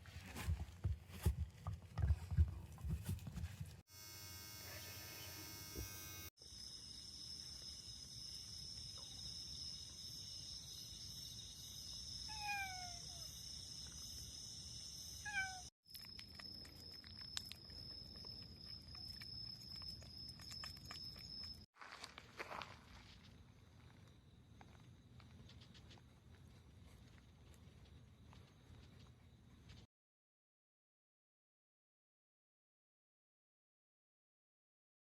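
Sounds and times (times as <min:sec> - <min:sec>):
cat meowing: 0:12.3 - 0:13.3, 0:15.2 - 0:15.7.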